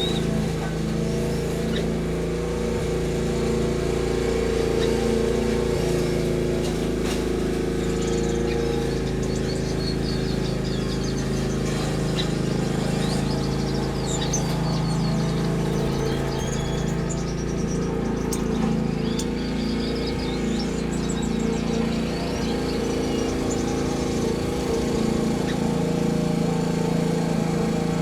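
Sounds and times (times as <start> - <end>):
finches chirping: 0.0 - 6.8, 7.6 - 28.0
low droning hum: 13.0 - 26.7.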